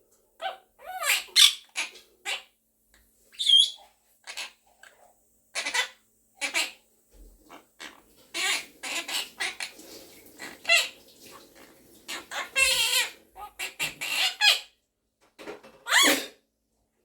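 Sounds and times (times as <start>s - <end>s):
parakeet chattering squawks: 0.4s - 2.5s, 3.3s - 6.8s, 7.5s - 9.8s, 10.4s - 11.5s, 12.1s - 14.7s
parakeet loud sweeping call: 3.3s - 4.5s.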